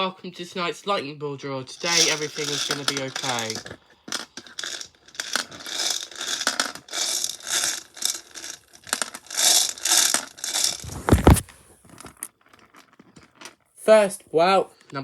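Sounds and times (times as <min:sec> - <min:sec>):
crinkling bag handling: 0:01.8 - 0:13.6
heavy thump: 0:10.8 - 0:11.8.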